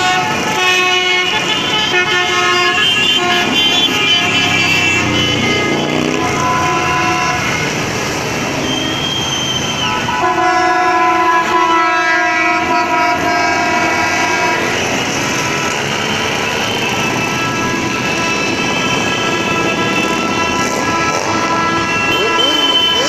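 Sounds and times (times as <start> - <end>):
traffic din: 0.0 - 23.0
multi-tone air horn chord: 10.2 - 14.8, 17.3 - 23.0.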